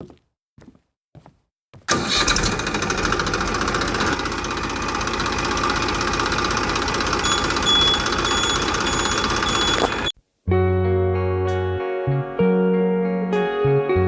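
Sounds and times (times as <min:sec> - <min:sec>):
small engine rattling drone: 0:02.0 - 0:10.1.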